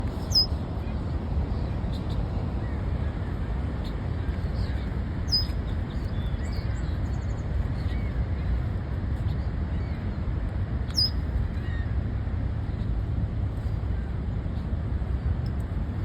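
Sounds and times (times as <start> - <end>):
steady low rumble: 0.0 - 16.0
faint bird chirps: 0.2 - 0.5, 5.3 - 5.6, 10.9 - 11.8
sharp high bird calls: 0.2 - 0.5, 5.3 - 5.6, 10.9 - 11.2.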